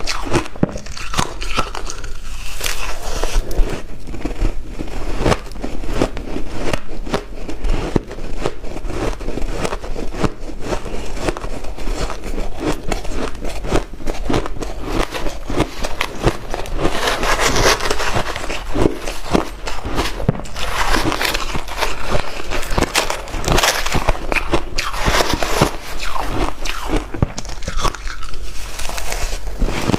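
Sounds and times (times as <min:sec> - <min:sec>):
ice being crunched and chewed: 0:00.0 - 0:29.9.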